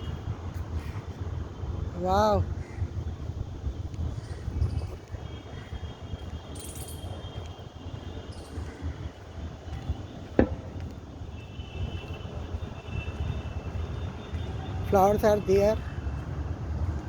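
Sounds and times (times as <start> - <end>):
insect chirring: 6.5 - 7.4.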